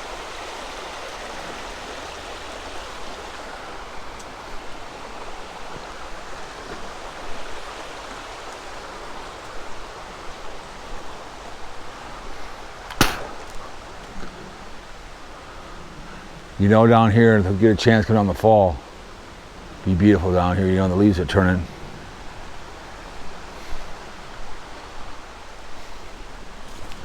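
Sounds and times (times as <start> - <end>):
creek water rushing: 0.0 - 27.0
sharp click: 12.9 - 13.6.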